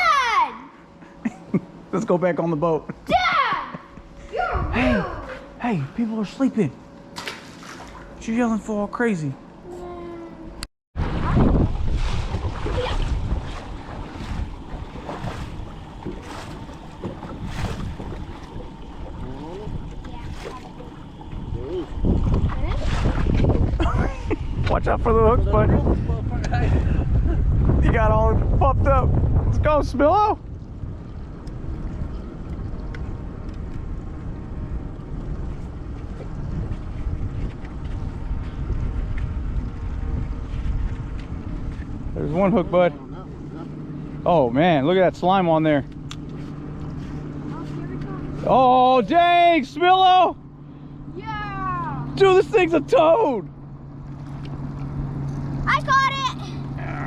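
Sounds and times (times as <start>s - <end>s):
wind buffeting microphone: 4.3s - 5.4s, 11.0s - 49.4s.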